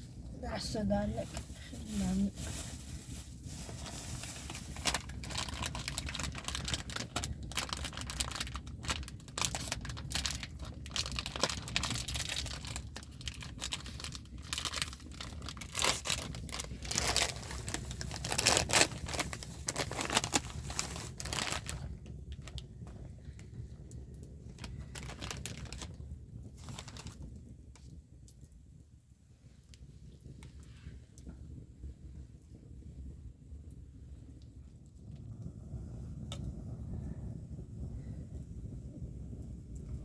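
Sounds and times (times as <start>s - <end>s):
crinkling and rustling: 0.0s - 28.5s.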